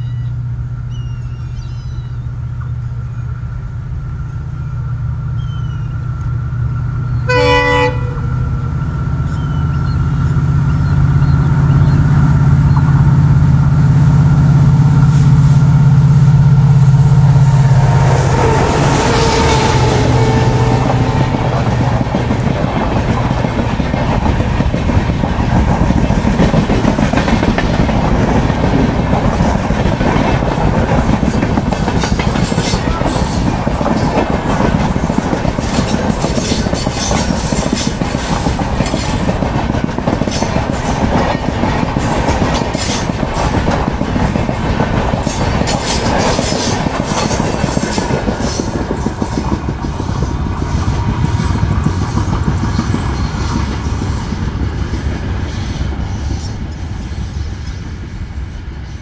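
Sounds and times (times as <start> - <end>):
diesel locomotive drone: 0.0 - 59.0
train wheels rumbling on rail: 0.0 - 59.0
wheels clickety-clack over joints: 10.4 - 15.7, 18.3 - 55.5.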